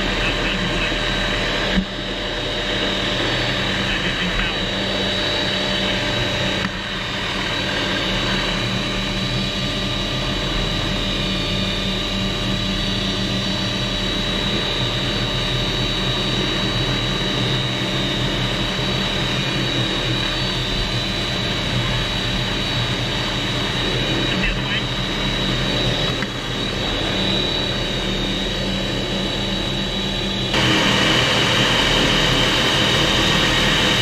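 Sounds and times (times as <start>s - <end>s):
helicopter engine and rotor: 0.0s - 34.0s.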